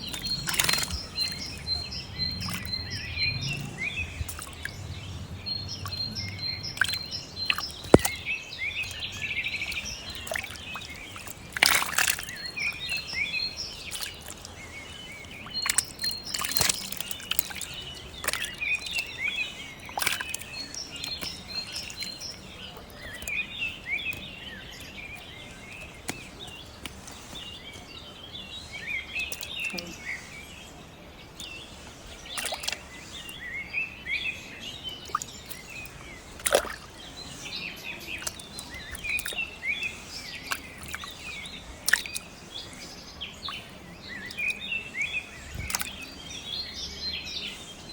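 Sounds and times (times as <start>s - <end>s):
sharp knocks or splashes: 0.0s - 13.0s, 15.5s - 19.1s, 19.9s - 22.4s, 32.4s - 32.8s, 36.4s - 37.0s, 38.2s - 39.4s, 41.8s - 42.2s, 45.5s - 46.0s
small birds chirping and twittering: 0.0s - 47.9s.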